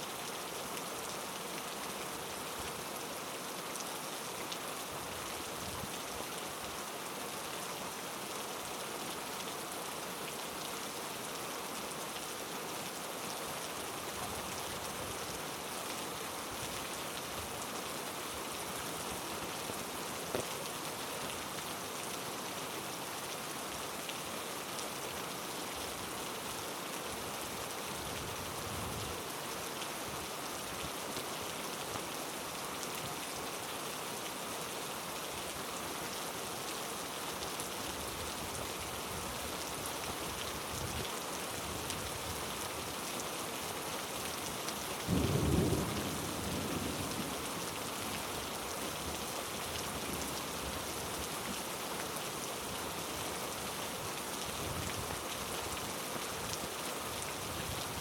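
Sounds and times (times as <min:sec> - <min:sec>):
heavy rain falling: 0:00.1 - 0:58.0
low rumble of thunder: 0:45.1 - 0:47.4.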